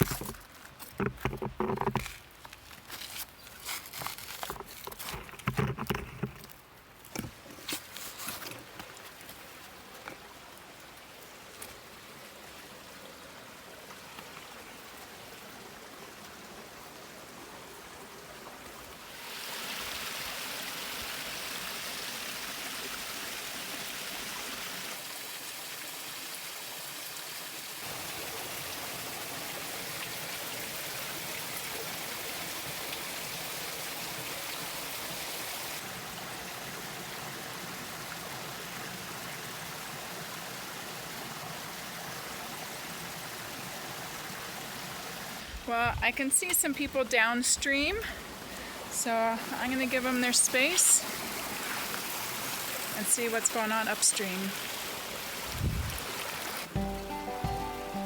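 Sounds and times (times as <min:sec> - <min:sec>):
footsteps on gravel: 0:00.0 - 0:05.3
stream water over rocks: 0:00.0 - 0:58.0.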